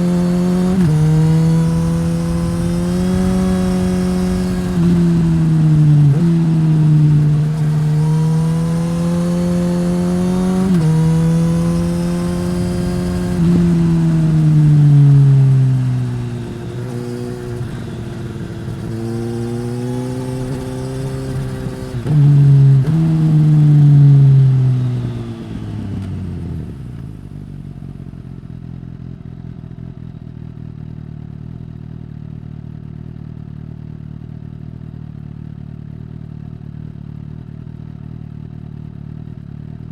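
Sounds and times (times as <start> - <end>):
motorcycle engine revving: 0.0 - 28.7
wind noise: 0.5 - 8.2
motorcycle engine idling: 24.2 - 39.9.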